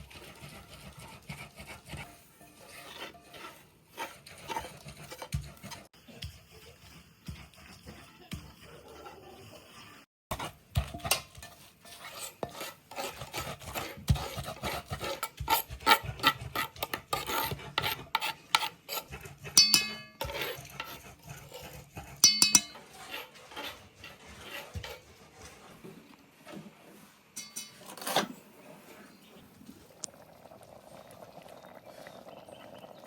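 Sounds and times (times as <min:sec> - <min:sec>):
spoon stirring and knocking: 0:00.0 - 0:25.7
utensils clattering on pots: 0:10.3 - 0:12.7, 0:19.4 - 0:21.4, 0:22.1 - 0:24.8, 0:27.4 - 0:28.4.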